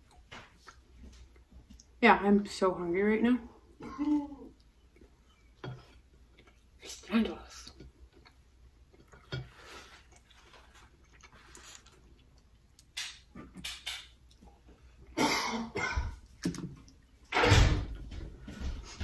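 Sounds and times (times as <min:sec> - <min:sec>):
person chewing: 0:00.0 - 0:02.0, 0:04.0 - 0:06.8, 0:07.6 - 0:15.2.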